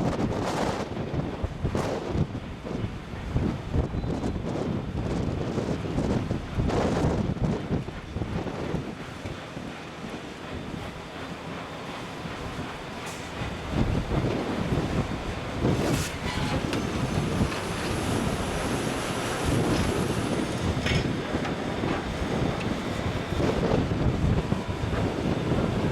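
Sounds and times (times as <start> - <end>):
drill rig rumbling clatter: 5.1 - 25.9.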